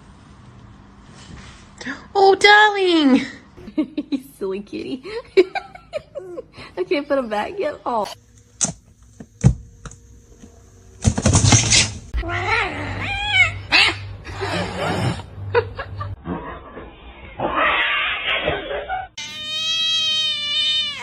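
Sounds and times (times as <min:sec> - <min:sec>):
cat meowing: 0:19.2 - 0:21.0.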